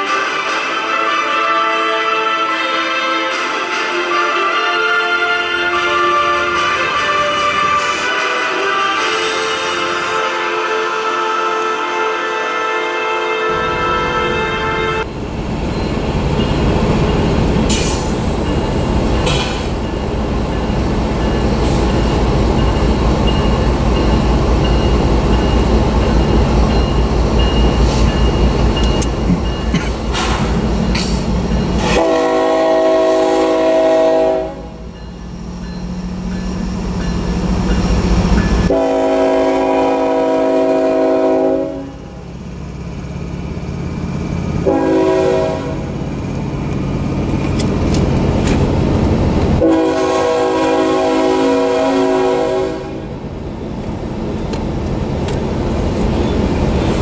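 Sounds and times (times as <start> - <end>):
train air horn blasts: 0.0 - 15.1, 31.8 - 34.9, 38.6 - 42.2, 44.6 - 45.9, 49.6 - 53.1
rolling rail noise: 0.0 - 57.0
diesel locomotive engine rumble: 13.4 - 57.0.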